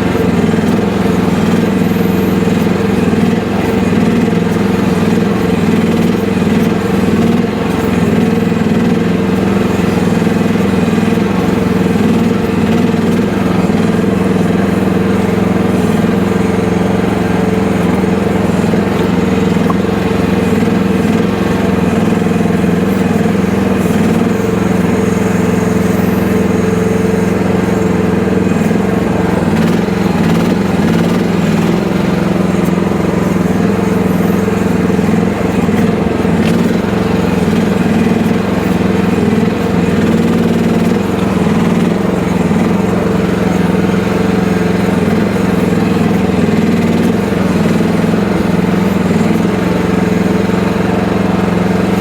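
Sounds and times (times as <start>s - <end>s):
excavator engine running: 0.0s - 52.0s.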